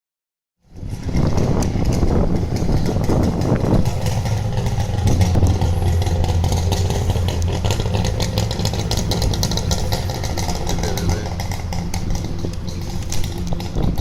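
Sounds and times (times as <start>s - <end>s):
vehicle engine running: 0.6s - 14.0s.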